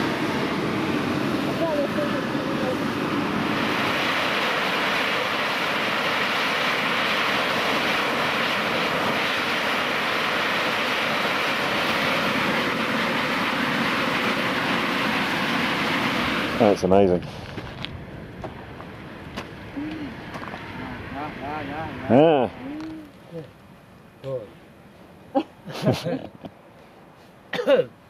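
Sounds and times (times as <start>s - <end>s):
steam jet hissing: 0.0s - 17.6s.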